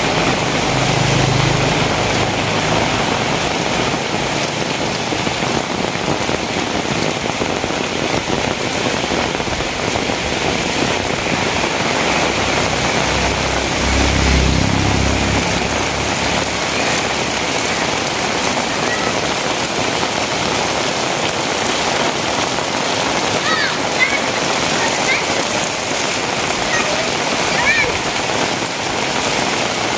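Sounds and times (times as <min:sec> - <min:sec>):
heavy rain falling: 0:00.0 - 0:29.9
low rumble: 0:09.4 - 0:18.6.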